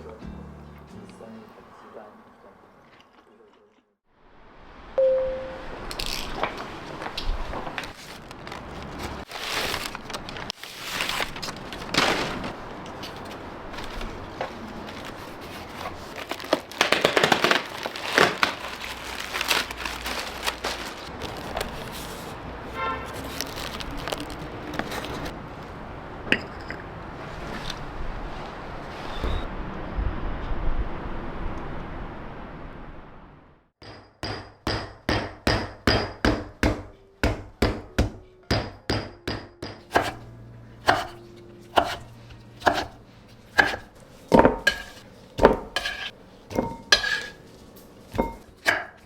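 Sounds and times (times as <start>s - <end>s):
short beep: 5.0s - 5.8s
food crackling: 5.9s - 22.4s, 23.1s - 25.3s, 41.7s - 49.0s
kitchen clinks and knocks: 43.6s - 47.4s, 48.1s - 49.0s.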